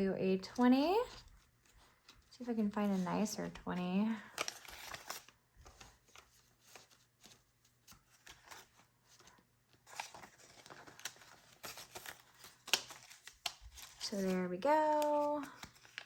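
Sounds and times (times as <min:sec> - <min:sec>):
banknotes rustling and flicking: 0:04.2 - 0:16.0.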